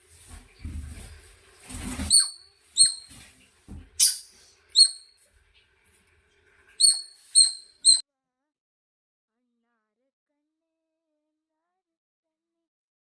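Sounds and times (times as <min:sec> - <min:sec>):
small animal high squeaks: 0:02.1 - 0:03.1, 0:04.0 - 0:05.2, 0:06.8 - 0:08.0.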